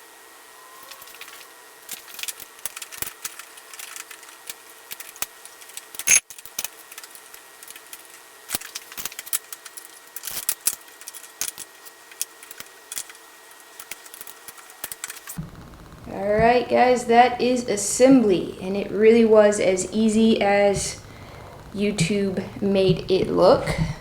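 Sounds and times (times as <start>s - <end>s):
wrench clicks and clinks: 6.0s - 6.4s.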